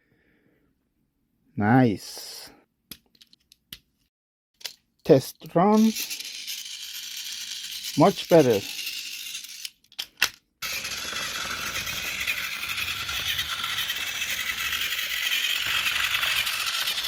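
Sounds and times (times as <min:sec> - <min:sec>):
toy train motor whirring: 0:05.7 - 0:17.0.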